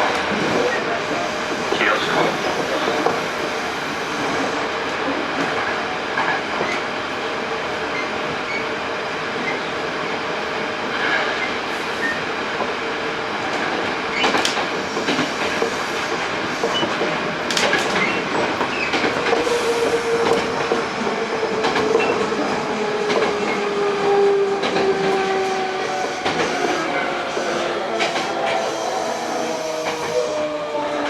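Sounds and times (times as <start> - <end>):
train motor hum: 17.1 - 31.0.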